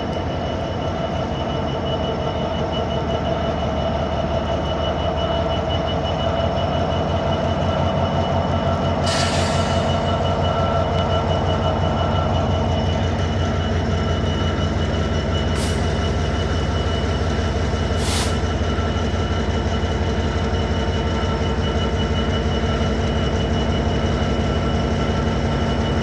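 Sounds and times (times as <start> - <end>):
train engine drone: 0.0 - 26.0
short hisses: 9.1 - 10.1.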